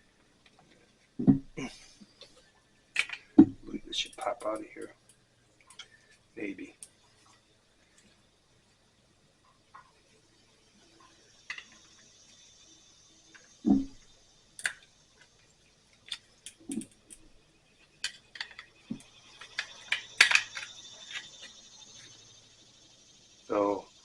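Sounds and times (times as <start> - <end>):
dull knocks: 1.2 - 1.6
metal clicks and taps of tools: 3.0 - 3.2, 14.6 - 15.3, 18.0 - 21.5.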